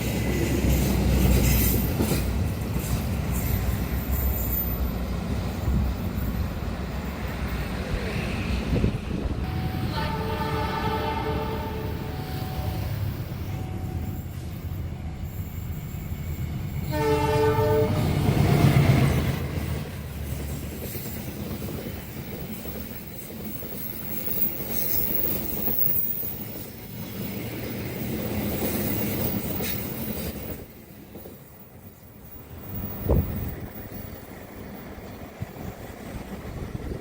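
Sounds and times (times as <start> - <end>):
carriages clattering on rails: 0.0 - 37.0
train horn: 9.4 - 14.2, 16.9 - 18.6.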